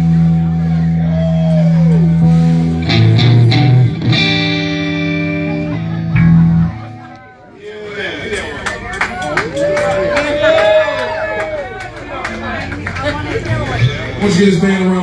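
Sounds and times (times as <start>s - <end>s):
held bass note: 0.0s - 7.0s
electric guitar: 0.0s - 7.3s.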